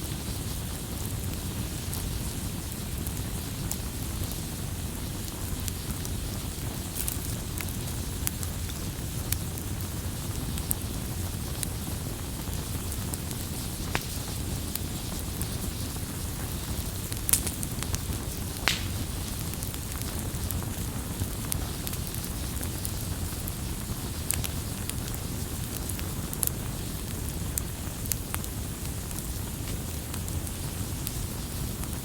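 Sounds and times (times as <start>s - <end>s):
campfire pops: 0.0s - 32.0s
low rumble of burning: 0.0s - 32.0s.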